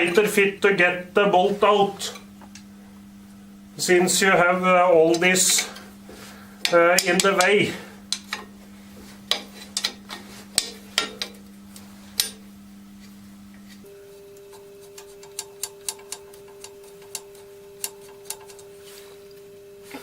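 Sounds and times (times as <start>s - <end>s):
faint steady hum: 0.0s - 20.0s
ratchet wrench clicking: 15.0s - 18.6s.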